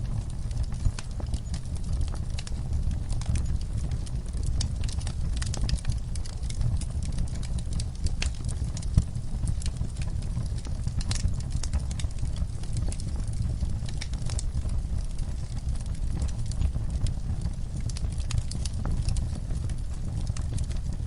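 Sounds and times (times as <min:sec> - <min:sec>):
fire crackling and popping: 0:00.0 - 0:21.0
low rumble of flames: 0:00.0 - 0:21.0.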